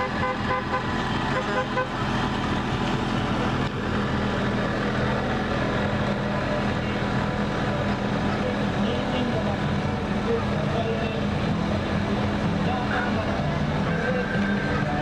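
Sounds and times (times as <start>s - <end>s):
vehicle horn tooting: 0.0s - 2.0s
low engine hum: 0.0s - 15.0s.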